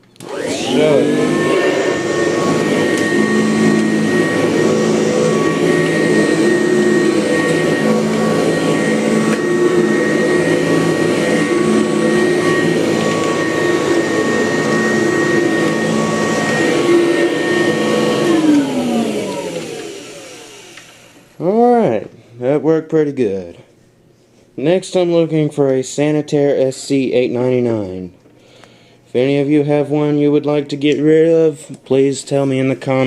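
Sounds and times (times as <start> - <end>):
vacuum cleaner motor whine: 0.0 - 21.6
vacuum motor winding down: 0.2 - 21.4.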